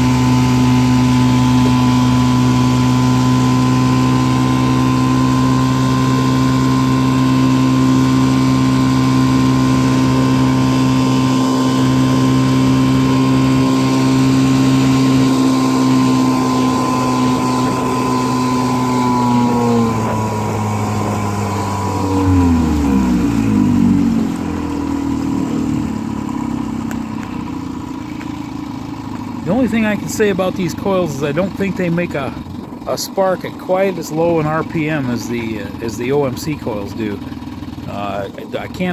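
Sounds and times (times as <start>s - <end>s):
outboard motor running: 0.0s - 38.9s.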